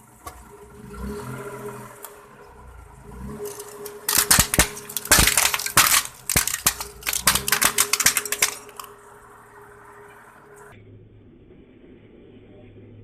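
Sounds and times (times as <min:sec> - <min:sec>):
objects crushed under car tyre: 0:02.0 - 0:10.7.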